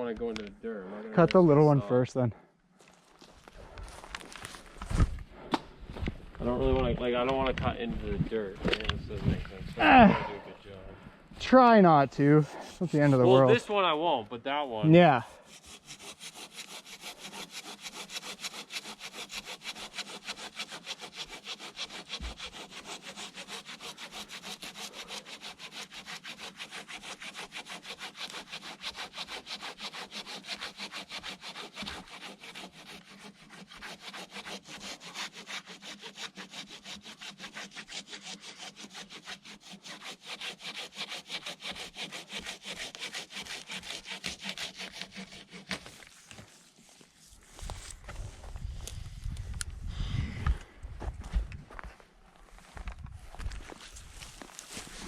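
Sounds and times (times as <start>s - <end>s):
saw cutting through log: 11.4s - 48.2s, 53.8s - 55.0s.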